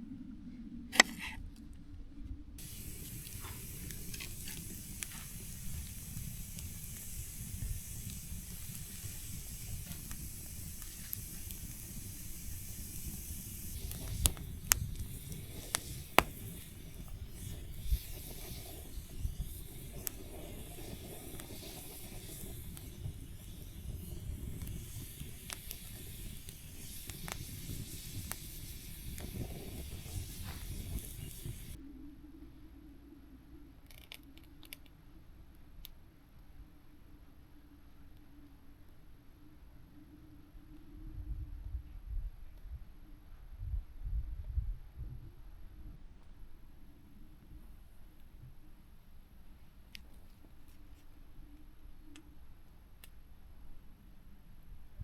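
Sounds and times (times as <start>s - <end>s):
meat sizzling as it fries: 2.6s - 31.8s.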